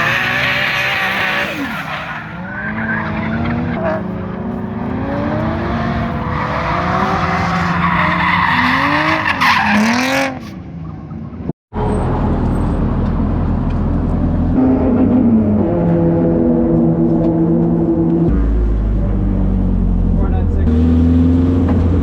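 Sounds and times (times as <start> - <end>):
car engine revving: 0.0 - 11.0, 11.8 - 22.0
tyre squeal: 5.9 - 10.6.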